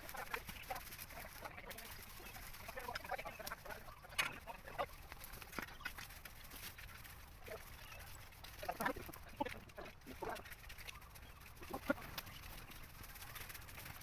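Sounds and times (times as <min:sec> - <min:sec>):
poultry clucking: 0:07.4 - 0:13.5.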